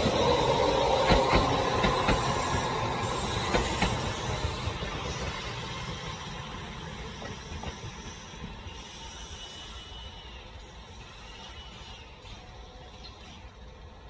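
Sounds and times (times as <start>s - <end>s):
train wheels clicking over rail joints: 0.0s - 9.0s.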